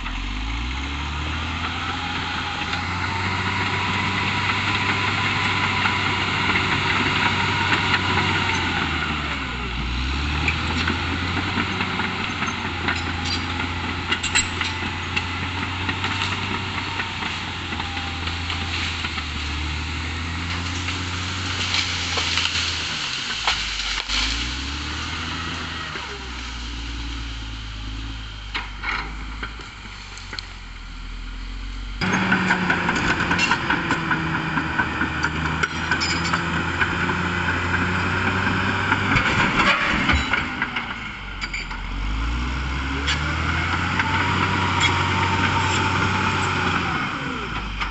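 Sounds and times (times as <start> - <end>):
bulldozer diesel engine running: 0.0 - 47.9
metallic clanks: 11.7 - 15.3, 35.2 - 36.9.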